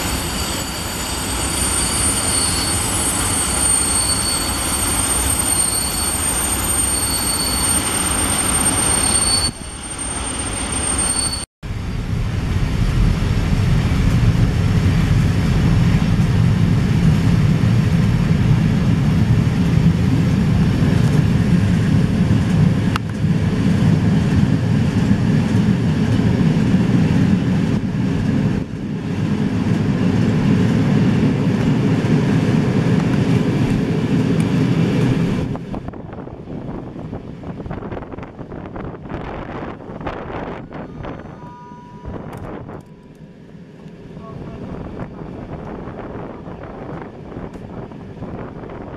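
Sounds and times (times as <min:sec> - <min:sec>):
steady high whine: 0:00.0 - 0:36.8, 0:37.7 - 0:48.9
train wheels rumbling on rail: 0:00.0 - 0:48.9
high beep: 0:40.6 - 0:42.3.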